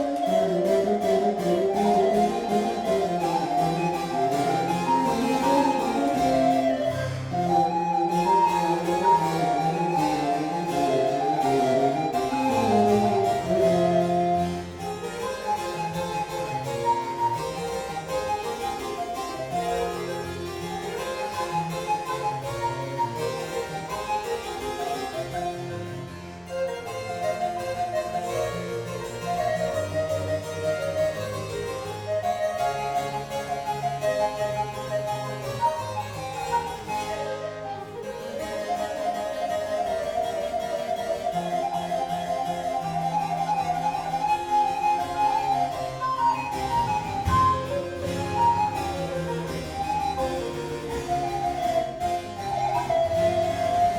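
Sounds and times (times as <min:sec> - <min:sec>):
baroque harpsichord chamber music: 0:00.0 - 0:53.9.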